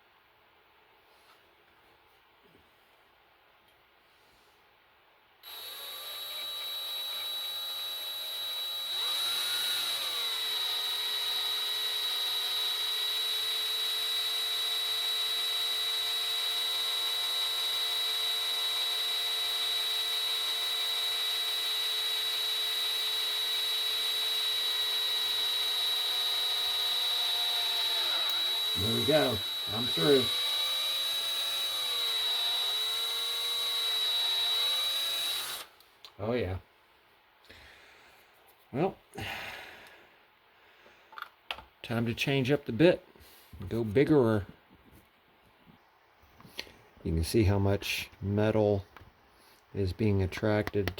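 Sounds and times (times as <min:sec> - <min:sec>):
electric drill whining: 0:05.4 - 0:35.8.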